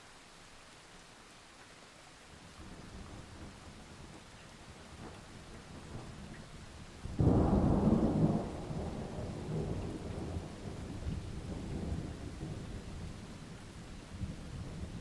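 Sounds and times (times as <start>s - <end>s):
steady rain: 0.0s - 15.0s
thunder rumbling: 7.1s - 12.8s.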